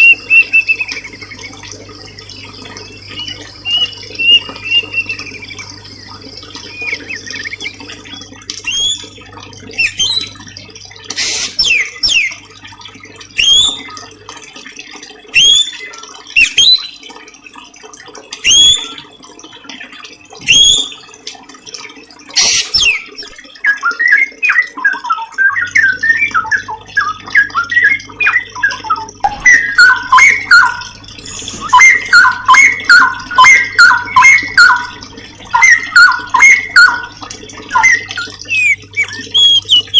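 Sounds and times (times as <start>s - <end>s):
fast lower chirping notes: 2.8s - 9.2s, 25.5s - 39.9s
songbird rising call notes: 28.5s - 37.1s, 37.7s - 39.9s.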